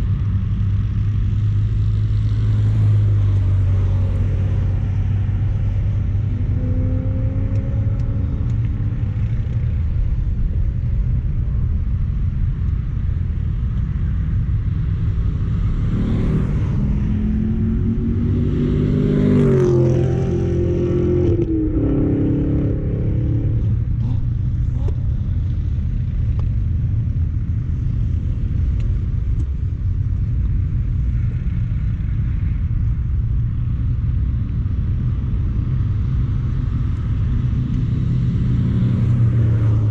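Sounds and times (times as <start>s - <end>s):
road and wind rumble: 0.0s - 39.9s
car engine accelerating: 1.3s - 25.7s, 36.8s - 39.9s.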